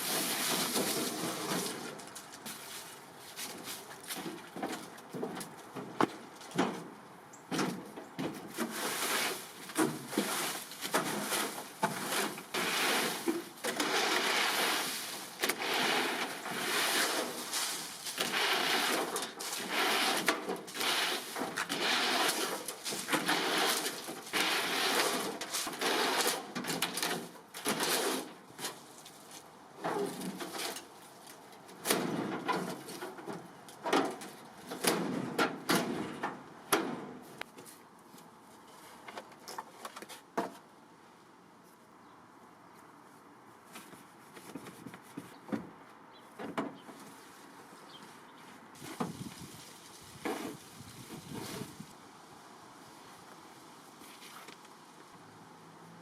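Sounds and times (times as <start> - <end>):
rough scrubbing strokes: 8.7 - 26.4.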